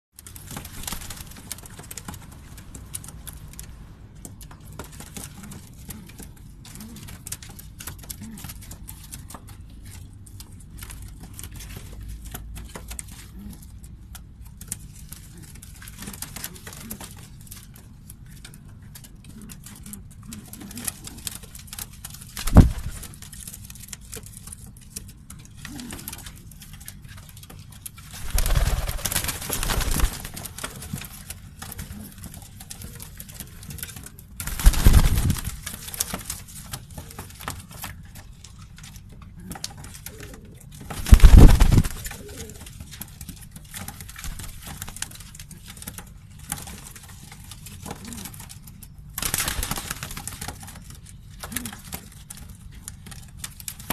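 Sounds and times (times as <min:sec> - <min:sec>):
small clicks and scratches: 0:00.2 - 0:53.9
rustling burst: 0:22.5 - 0:23.0, 0:41.0 - 0:42.2
pigeons cooing: 0:28.2 - 0:30.5, 0:40.0 - 0:42.7.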